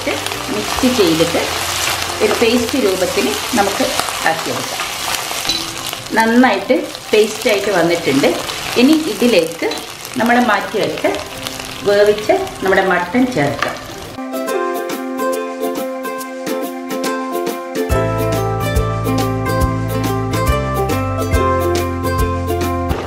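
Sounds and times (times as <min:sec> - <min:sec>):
food sizzling in hot oil: 0:00.0 - 0:17.6
light instrumental music: 0:00.0 - 0:23.0.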